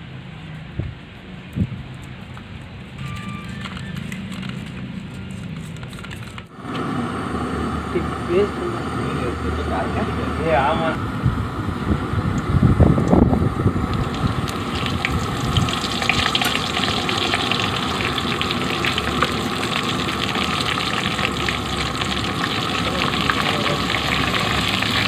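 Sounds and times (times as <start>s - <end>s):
food sizzling in hot oil: 13.8s - 25.0s
oil crackling and popping: 13.8s - 25.0s.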